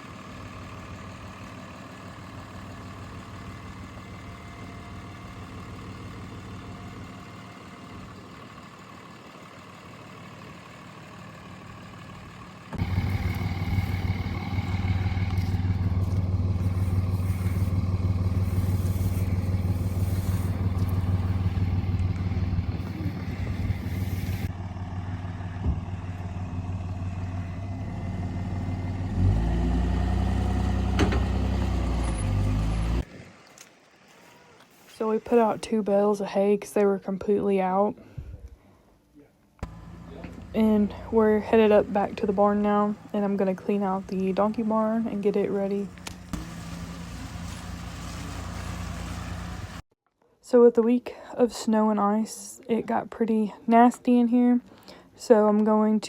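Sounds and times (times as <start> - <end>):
vehicle engine revving: 11.7 - 33.1, 39.6 - 49.8.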